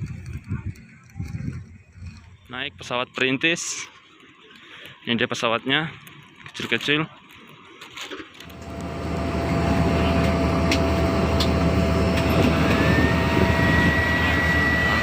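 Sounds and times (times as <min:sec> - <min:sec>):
high engine whine: 0:08.4 - 0:15.0
propeller aircraft engine drone: 0:08.4 - 0:15.0.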